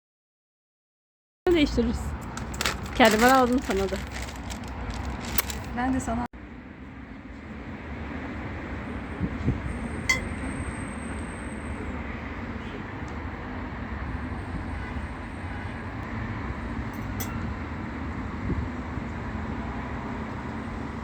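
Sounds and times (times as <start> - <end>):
low rumbling background noise: 1.5 - 13.7
light clinks: 17.0 - 17.4.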